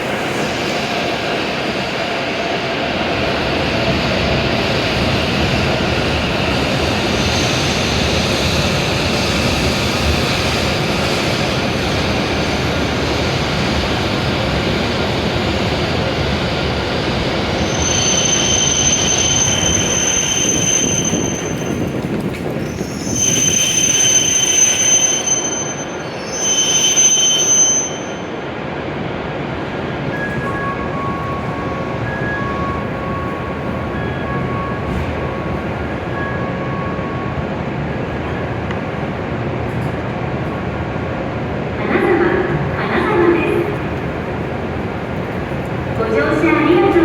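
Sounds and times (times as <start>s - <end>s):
train rumble: 0.0s - 47.0s
high-pitched brake squeal: 17.6s - 22.0s, 22.6s - 28.4s.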